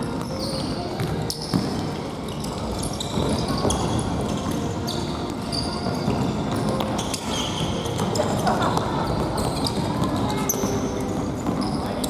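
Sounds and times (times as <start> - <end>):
shoes squeaking: 0.0 - 12.0.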